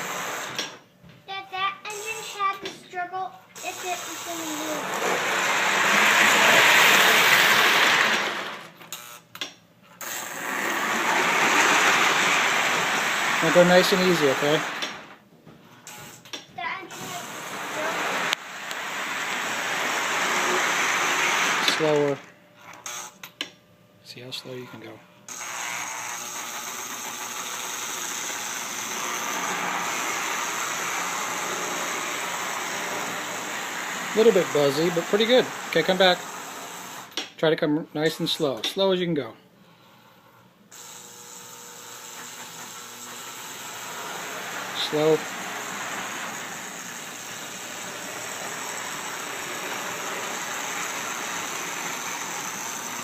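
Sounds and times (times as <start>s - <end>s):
toy train motor whirring: 0.0s - 0.8s, 1.9s - 2.6s, 3.6s - 9.2s, 9.9s - 15.2s, 15.8s - 23.3s, 25.3s - 37.2s, 40.7s - 53.0s
electrical buzz: 10.0s - 15.2s, 16.8s - 22.3s.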